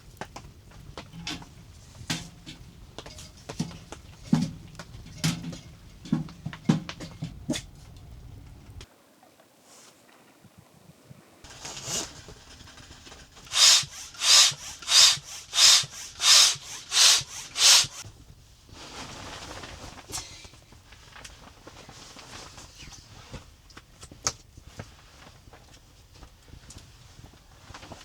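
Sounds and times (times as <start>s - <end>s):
faint rustling: 11.5s - 13.6s
hand saw cutting wood: 11.5s - 18.0s.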